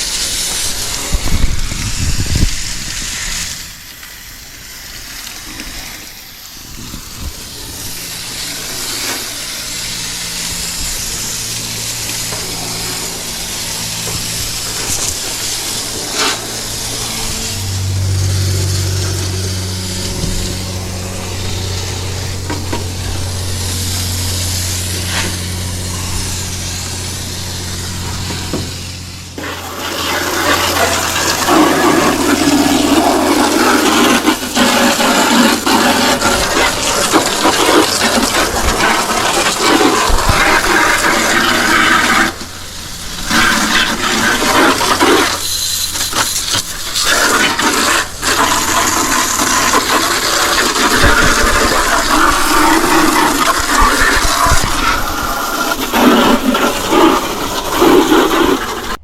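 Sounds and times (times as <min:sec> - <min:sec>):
steady low hum: 0:00.0 - 0:59.0
water spraying onto coils: 0:00.0 - 0:59.0.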